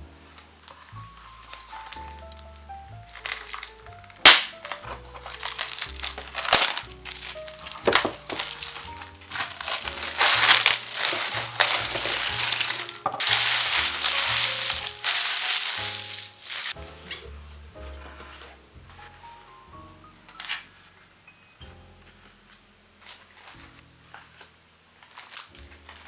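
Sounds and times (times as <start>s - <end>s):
soft background music: 0.0s - 26.0s
packaging crinkling: 0.3s - 16.8s, 23.0s - 26.0s
sharp snap: 4.3s - 4.9s.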